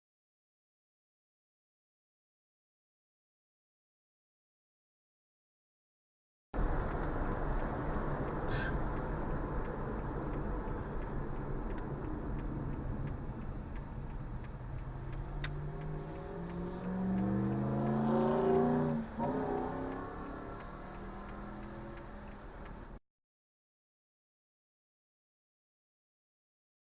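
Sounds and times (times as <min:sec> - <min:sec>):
car engine accelerating: 0:06.6 - 0:23.0
road noise: 0:06.6 - 0:23.0.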